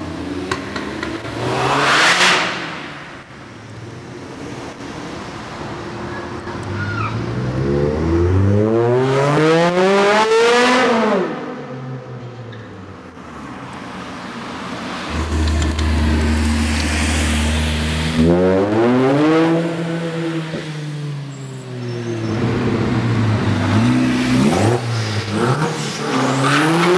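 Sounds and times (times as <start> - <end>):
deep car engine rumble: 15.1 - 18.8
sports car engine accelerating: 15.1 - 21.1.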